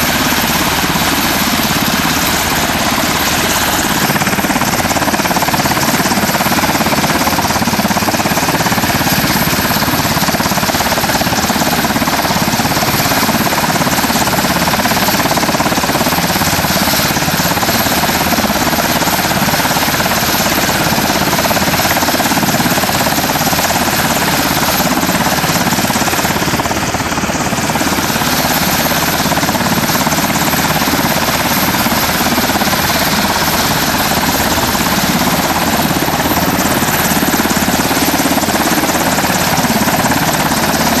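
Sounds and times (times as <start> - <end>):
helicopter engines and rotor: 0.0 - 41.0.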